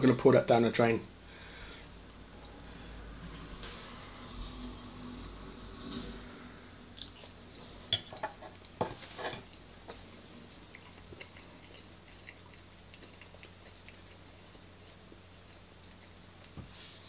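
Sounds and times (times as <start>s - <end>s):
person chewing: 7.0s - 7.4s, 9.4s - 16.6s.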